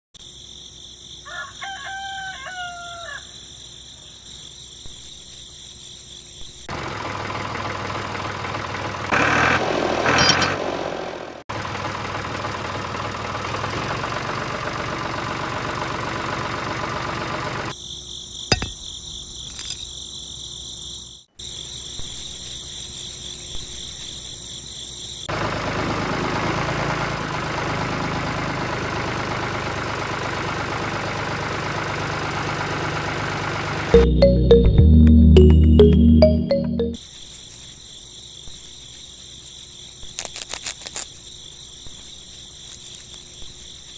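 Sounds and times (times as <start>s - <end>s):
rooster crowing: 1.2s - 3.4s.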